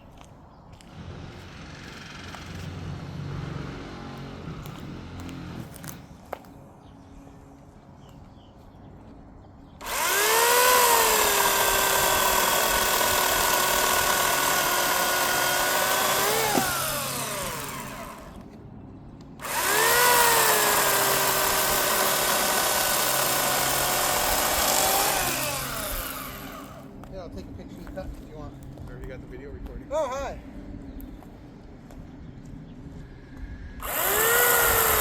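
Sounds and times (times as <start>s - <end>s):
electric chainsaw cutting log: 0.8s - 6.0s, 9.8s - 18.6s, 19.4s - 27.0s, 33.8s - 35.0s.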